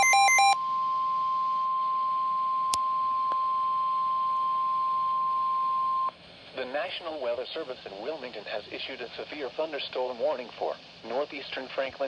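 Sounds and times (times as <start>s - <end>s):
warbling digital data tones: 0.0s - 0.6s
steady single-pitch alarm tone: 0.0s - 6.1s.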